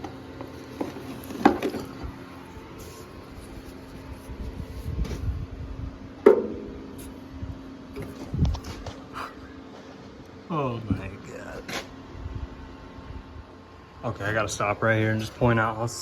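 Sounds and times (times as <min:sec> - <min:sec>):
background hum: 0:00.0 - 0:16.0
low rumbling shuffle: 0:01.8 - 0:06.0, 0:06.7 - 0:09.2.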